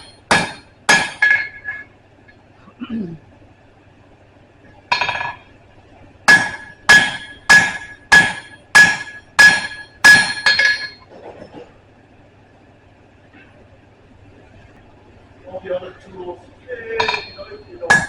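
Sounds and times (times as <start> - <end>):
hammer ringing on anvil: 0.0 - 1.9, 6.3 - 11.0, 17.0 - 18.0.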